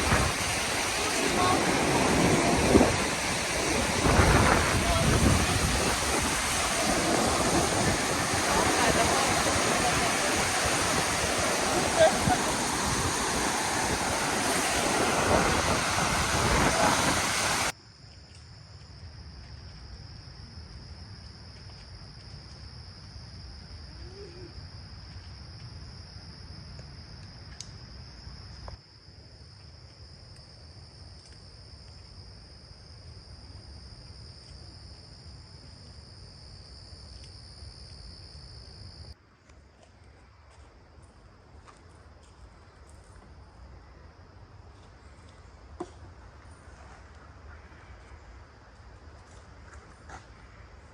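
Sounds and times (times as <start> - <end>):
lake surf: 0.0 - 17.7
low wind rumble: 0.0 - 17.7
rushing wind: 0.0 - 17.7.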